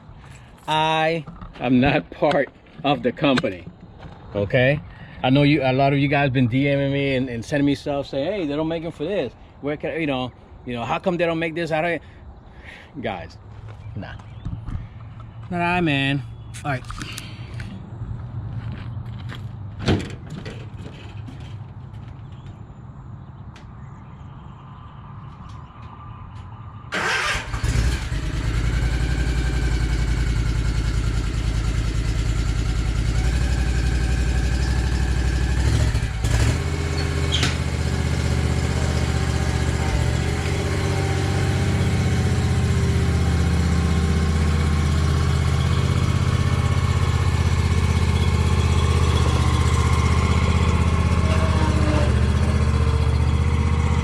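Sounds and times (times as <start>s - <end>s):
lawn mower engine running: 26.9s - 54.0s.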